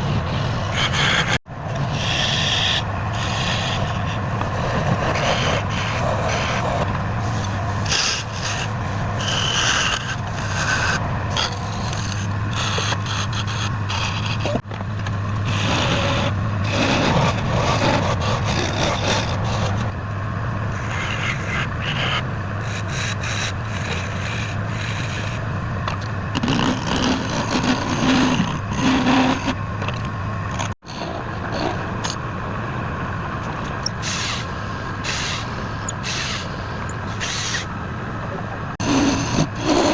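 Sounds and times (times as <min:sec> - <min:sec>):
tool scraping spinning wood: 0:00.0 - 0:14.7, 0:15.3 - 0:20.0, 0:20.7 - 0:32.2, 0:33.5 - 0:37.7, 0:38.8 - 0:39.9.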